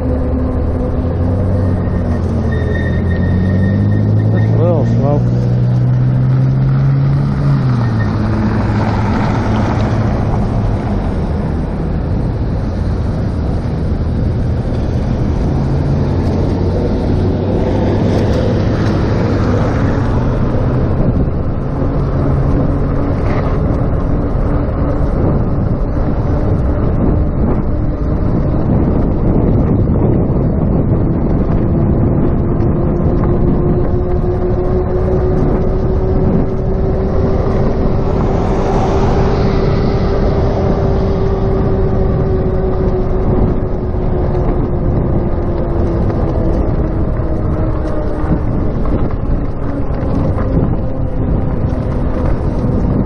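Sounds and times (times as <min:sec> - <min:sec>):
road noise: 0:00.0 - 0:53.0
wind rush on microphone: 0:00.0 - 0:53.0.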